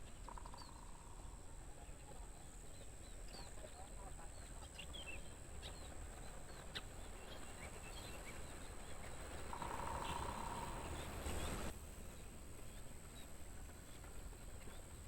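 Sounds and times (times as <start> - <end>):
bird chirps: 0.2 - 1.4, 4.5 - 11.7
crickets trilling: 9.5 - 11.7.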